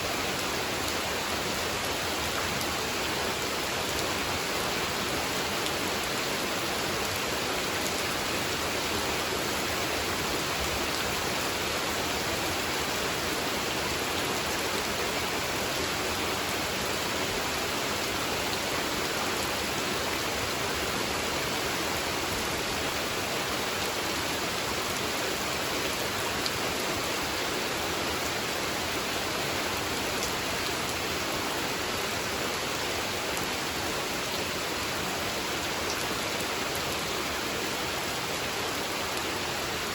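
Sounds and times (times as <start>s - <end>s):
rain falling on pond: 0.0s - 39.9s.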